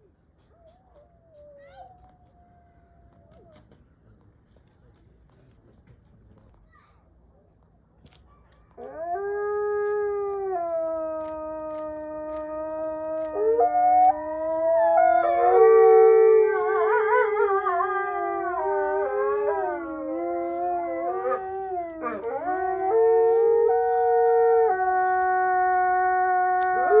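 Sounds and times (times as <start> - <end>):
wolves howling in chorus: 8.8 - 27.0.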